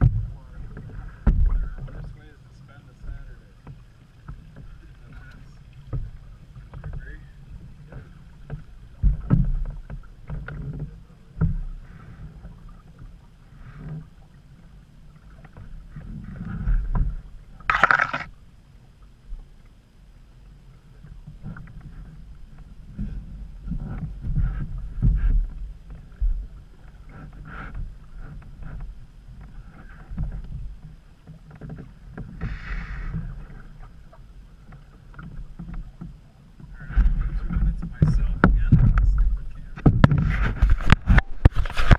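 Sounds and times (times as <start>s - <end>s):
paddle knocking canoe hull: 0.0s - 2.2s, 3.0s - 14.4s, 15.1s - 18.3s, 22.5s - 41.9s
low rumbling: 0.0s - 10.2s
water splash: 17.6s - 18.4s.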